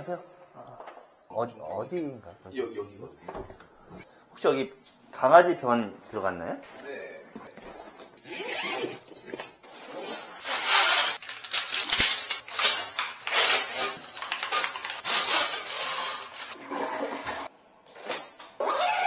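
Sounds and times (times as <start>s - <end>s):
clattering and rustling handling: 6.0s - 16.6s.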